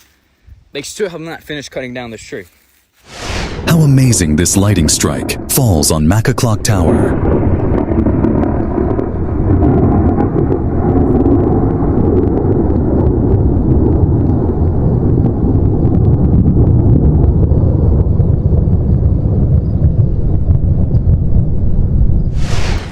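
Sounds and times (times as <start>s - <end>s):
scattered crackles: 2.4s - 16.8s
wind buffeting microphone: 6.6s - 22.9s.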